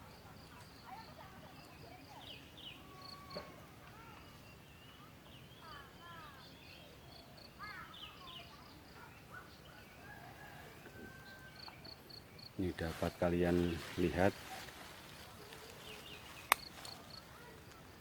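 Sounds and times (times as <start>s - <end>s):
birds chirping: 0.0s - 18.0s
insect chirping: 4.1s - 12.7s, 13.6s - 18.0s.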